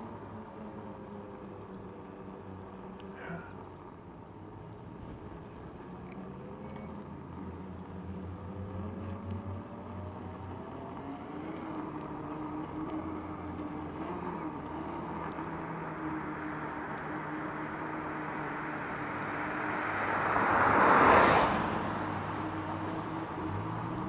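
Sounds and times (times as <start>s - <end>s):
vehicle passing by: 5.5s - 24.0s.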